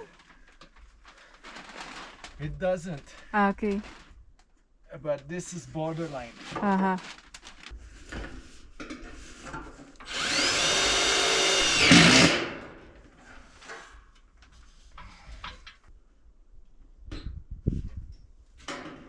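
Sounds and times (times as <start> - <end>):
power drill driving screw into metal: 10.0 - 12.7.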